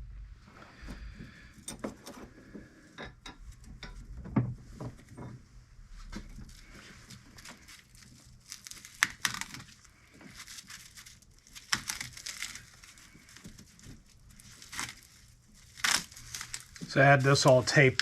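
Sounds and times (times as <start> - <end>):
wrapping crinkling and tearing: 6.1 - 18.0.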